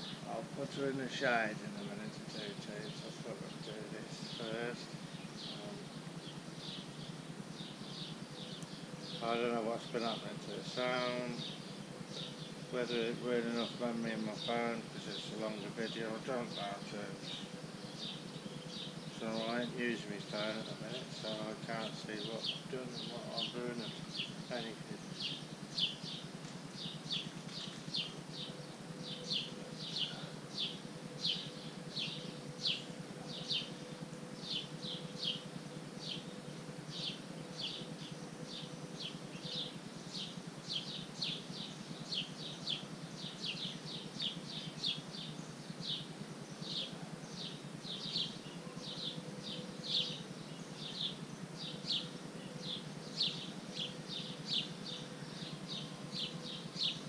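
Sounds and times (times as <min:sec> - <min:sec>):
bird chirping: 0:00.0 - 0:57.0
faint low hum: 0:00.0 - 0:57.0.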